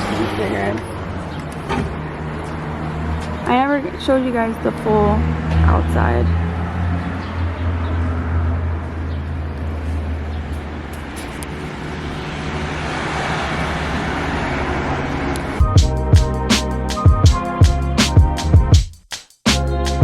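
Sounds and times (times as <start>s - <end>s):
road traffic rumble: 0.0s - 18.7s
music with a beat: 15.6s - 20.0s.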